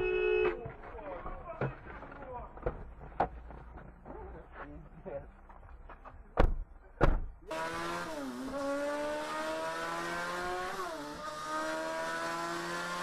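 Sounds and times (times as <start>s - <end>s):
car engine accelerating: 7.5s - 13.0s.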